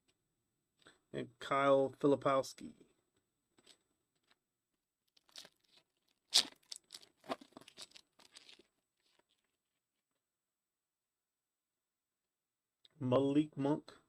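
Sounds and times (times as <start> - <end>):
wrapper tearing and crinkling: 5.2 - 9.3.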